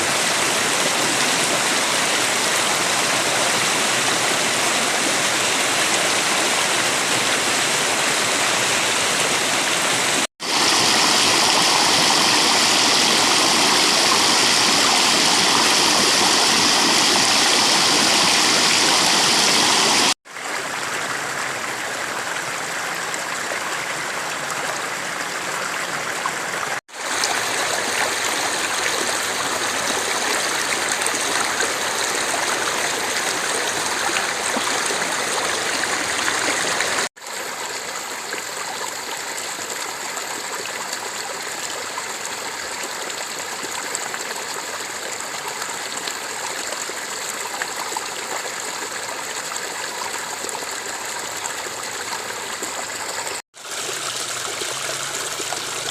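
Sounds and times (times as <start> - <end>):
river water rushing: 0.0 - 20.5, 25.2 - 37.1.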